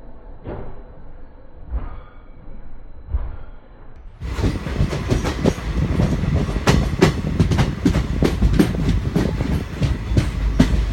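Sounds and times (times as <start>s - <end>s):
train wheels clattering over rails: 4.2s - 10.9s.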